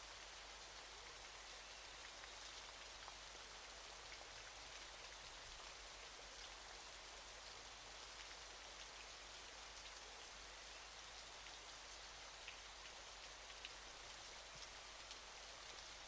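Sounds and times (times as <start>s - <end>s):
faint hiss of falling water: 0.0s - 16.0s
water drips and splashes: 11.1s - 16.0s.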